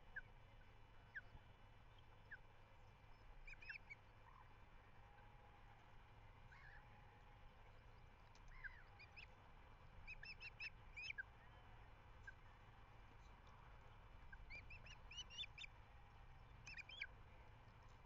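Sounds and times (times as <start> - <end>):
low steady rumble: 0.0 - 18.0
ospreys chirping: 10.1 - 11.2, 14.3 - 15.7, 16.7 - 17.1.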